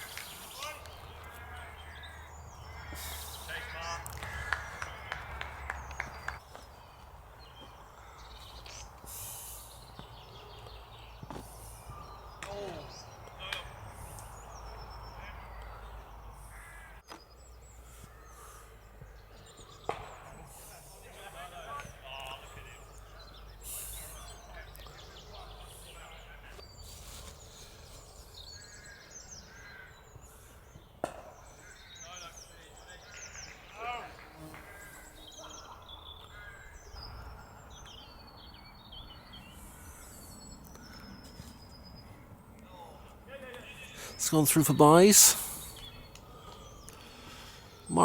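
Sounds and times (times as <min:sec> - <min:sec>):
birds chirping and calling: 0:00.0 - 0:48.0
crow-like caws: 0:01.1 - 0:06.4, 0:07.9 - 0:08.8, 0:15.4 - 0:17.0, 0:28.6 - 0:30.5, 0:31.5 - 0:32.1, 0:34.5 - 0:37.0.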